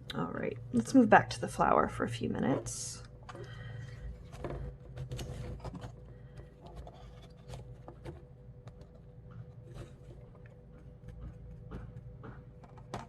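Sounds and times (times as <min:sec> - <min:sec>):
faint clicks and taps: 0:05.2 - 0:13.0.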